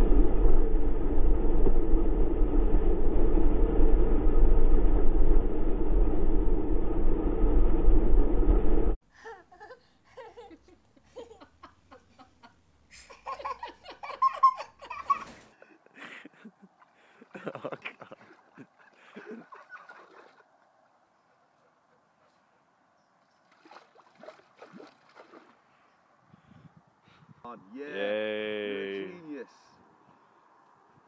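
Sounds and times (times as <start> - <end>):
person laughing: 9.2 - 20.1
wind buffeting microphone: 26.1 - 27.5.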